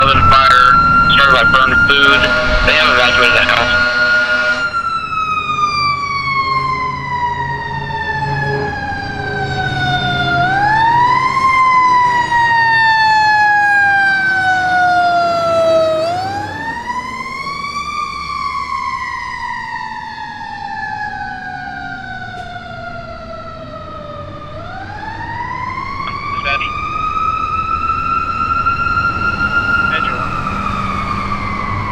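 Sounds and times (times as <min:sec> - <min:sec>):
truck engine rumbling: 0:00.0 - 0:05.9, 0:21.8 - 0:31.9
fire truck siren wailing: 0:00.0 - 0:31.9.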